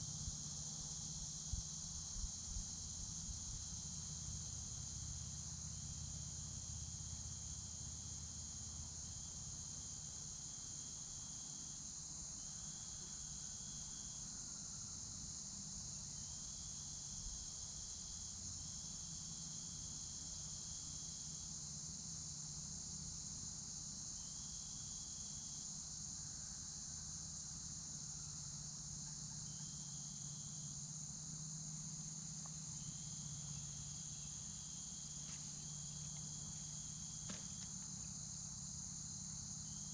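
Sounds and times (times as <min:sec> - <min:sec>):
lower insect trill: 0:00.0 - 0:39.9
high insect buzzing drone: 0:27.2 - 0:39.9.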